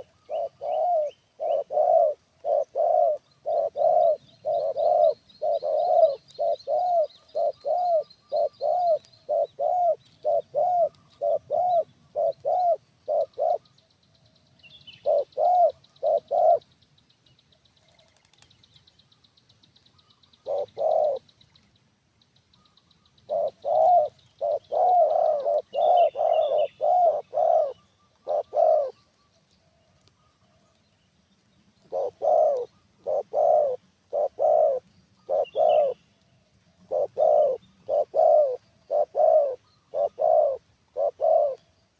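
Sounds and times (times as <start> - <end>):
dove cooing: 0.0 - 13.7, 15.0 - 16.6, 20.4 - 21.2, 23.3 - 29.0, 31.8 - 36.0, 36.8 - 41.7
small birds chirping: 0.0 - 41.9.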